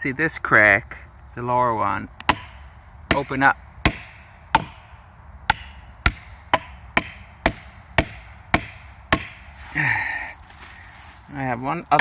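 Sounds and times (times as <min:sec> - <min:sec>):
hammer striking wedge: 0:02.3 - 0:04.8, 0:05.5 - 0:09.4.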